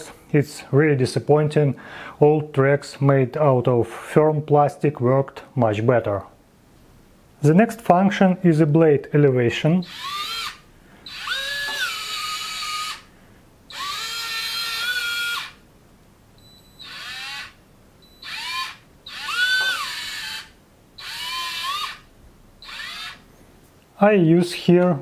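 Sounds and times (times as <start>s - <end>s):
electric motor whining through gears: 9.9s - 13.0s, 13.7s - 15.6s, 16.8s - 17.6s, 18.2s - 22.0s, 22.6s - 23.2s.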